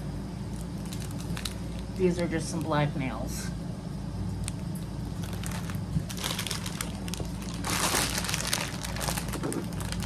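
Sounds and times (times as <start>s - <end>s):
steady low hum: 0.0s - 10.0s
packaging crinkling: 0.5s - 2.8s, 4.4s - 10.0s.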